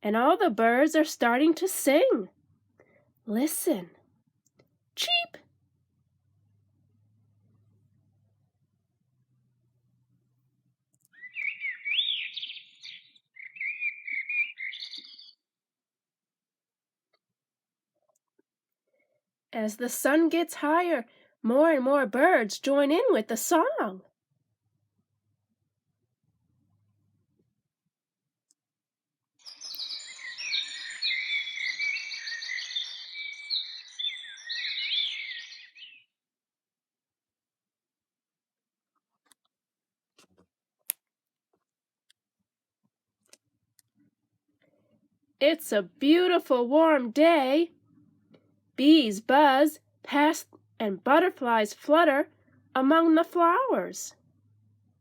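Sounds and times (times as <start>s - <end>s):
songbird warbling: 11.1s - 15.4s, 29.4s - 36.1s.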